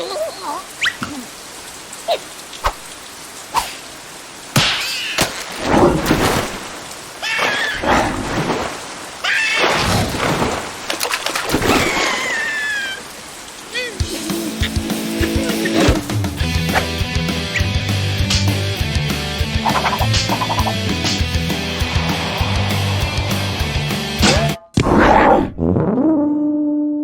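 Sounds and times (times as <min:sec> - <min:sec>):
cartoon rain falling: 0:00.0 - 0:24.6
high gliding squeaky calls: 0:00.2 - 0:01.1
noisy bursts: 0:18.6 - 0:24.2.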